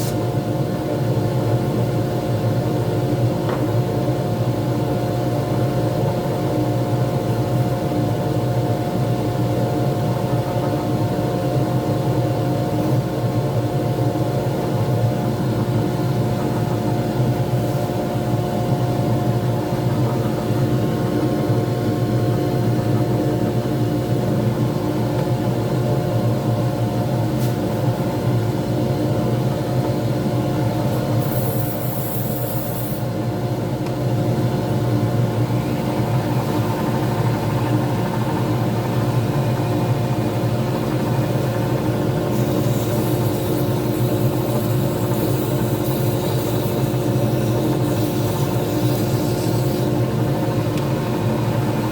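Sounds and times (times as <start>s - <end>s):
lathe motor humming: 34.3s - 51.9s.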